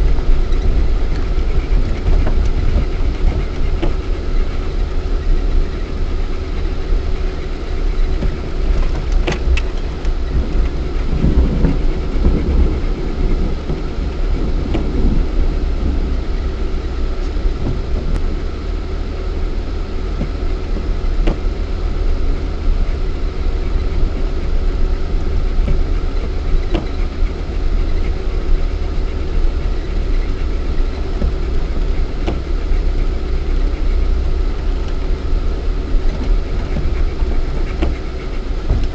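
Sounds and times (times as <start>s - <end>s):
car engine low rumble: 0.0s - 38.9s
short knocks and clicks: 36.1s - 38.9s.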